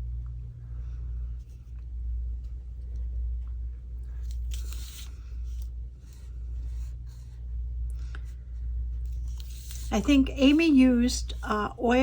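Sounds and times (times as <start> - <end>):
steady low hum: 0.0 - 12.0
markers scratching on paper: 9.0 - 12.0.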